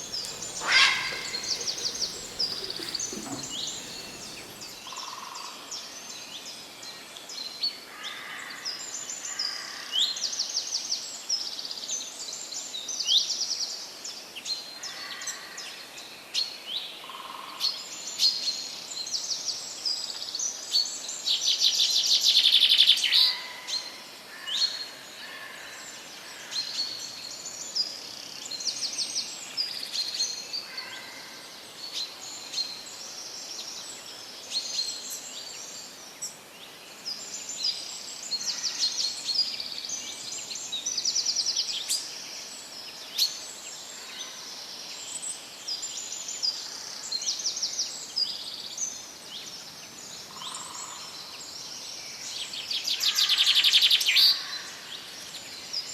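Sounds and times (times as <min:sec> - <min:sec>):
loud fast bird trill: 0:00.0 - 0:04.7
small birds chirping and trilling: 0:00.0 - 0:04.8.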